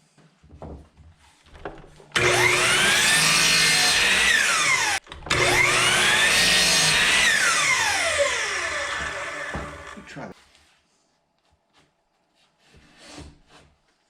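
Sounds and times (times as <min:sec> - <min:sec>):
table saw spinning up and down: 0:02.1 - 0:10.3.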